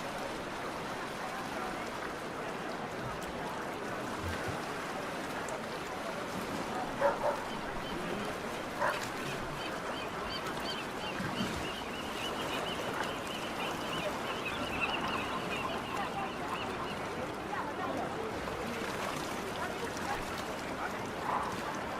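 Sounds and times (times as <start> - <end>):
outdoor noise: 6.8 - 21.9
dog barking: 7.0 - 7.6, 8.8 - 9.1.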